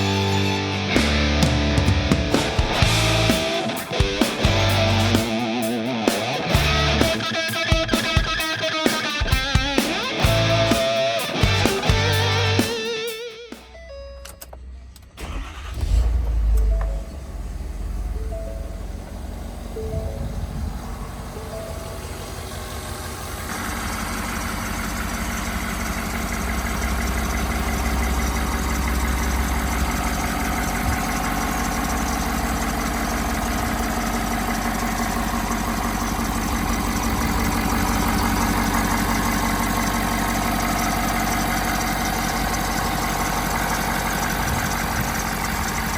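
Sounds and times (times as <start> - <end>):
diesel engine running: 0.0 - 8.8, 9.4 - 13.0, 13.7 - 45.9.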